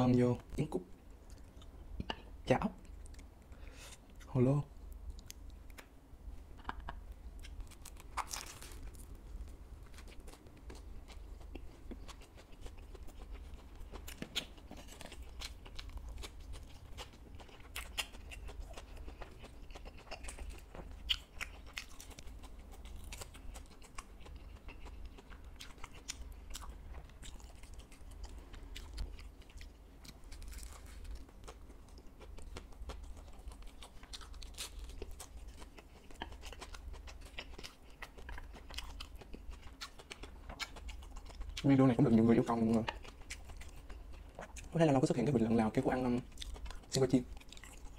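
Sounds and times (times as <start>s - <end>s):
low steady hum: 0.0s - 47.9s
person chewing crunchy food: 6.5s - 47.9s.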